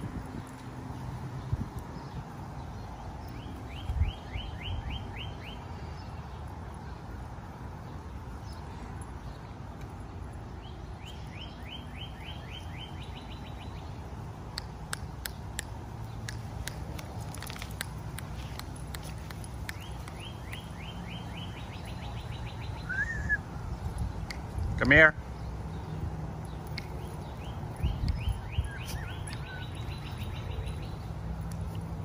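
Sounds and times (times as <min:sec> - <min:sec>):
songbird singing falling notes: 0:09.3 - 0:24.7, 0:25.4 - 0:31.8
sharp clicks: 0:14.5 - 0:20.7.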